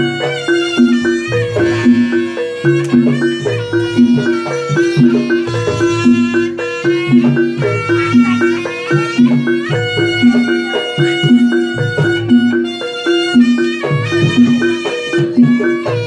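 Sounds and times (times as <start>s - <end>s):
traditional ensemble music: 0.0s - 16.0s.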